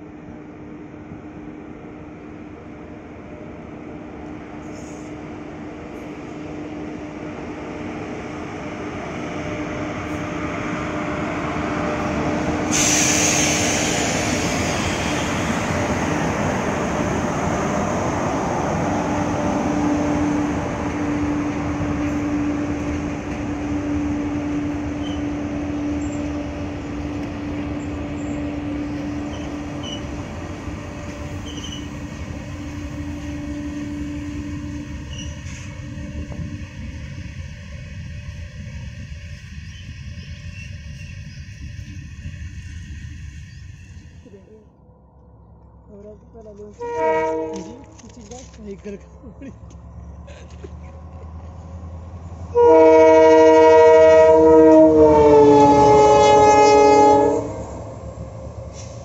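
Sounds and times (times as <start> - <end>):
locomotive hum: 0.0 - 59.0
loud hiss: 12.7 - 15.4.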